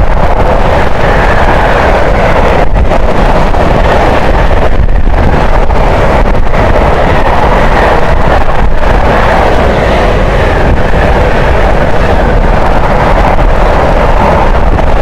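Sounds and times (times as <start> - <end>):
train passing at speed: 0.0 - 15.0
wind buffeting microphone: 0.0 - 15.0.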